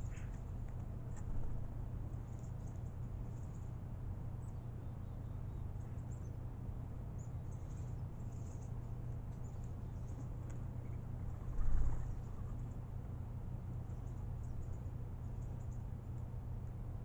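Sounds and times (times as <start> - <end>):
steady low hum: 0.0 - 17.0
starlings chirping and clicking: 7.1 - 12.8, 13.8 - 16.8.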